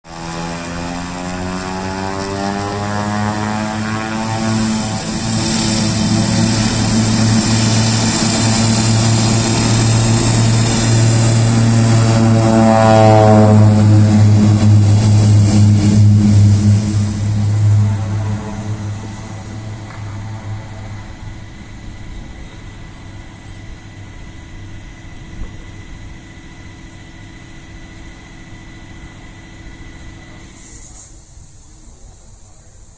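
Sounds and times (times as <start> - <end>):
turboprop engine and propeller: 0.1 - 32.9
thin high whine: 3.6 - 25.7.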